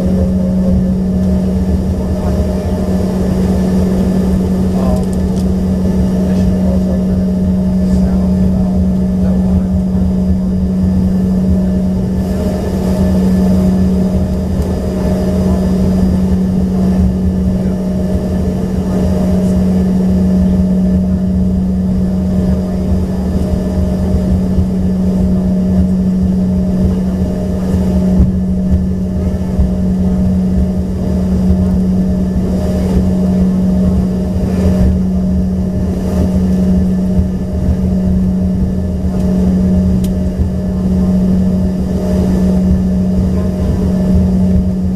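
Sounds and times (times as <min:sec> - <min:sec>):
jet engine cabin drone: 0:00.0 - 0:44.9.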